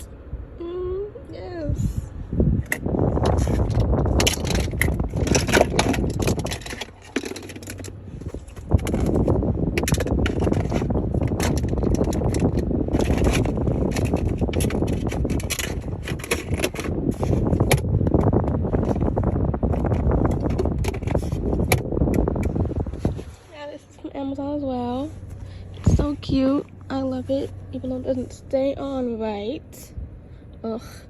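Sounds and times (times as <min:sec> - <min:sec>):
items rummaged and rustling: 0:02.7 - 0:21.8.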